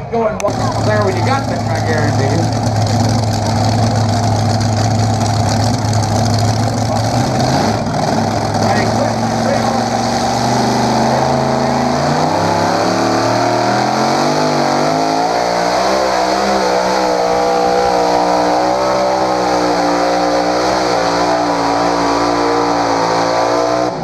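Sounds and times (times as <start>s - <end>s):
tractor engine at full throttle: 0.0s - 24.0s.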